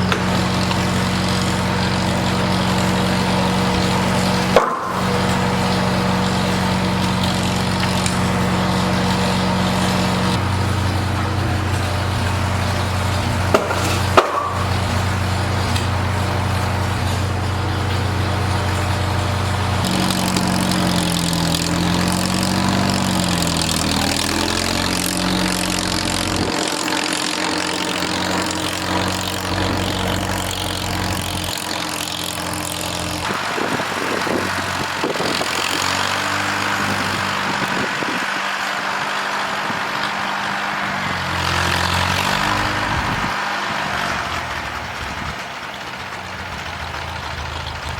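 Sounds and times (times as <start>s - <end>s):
log splitter engine running: 0.0s - 47.9s
sharp cracks: 11.2s - 33.6s.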